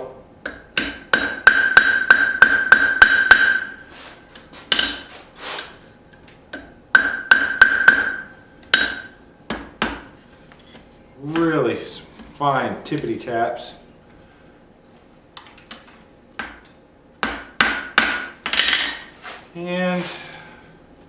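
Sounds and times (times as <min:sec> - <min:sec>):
hammer tapping metal on anvil: 0:00.4 - 0:03.8, 0:04.7 - 0:05.0, 0:06.5 - 0:10.1.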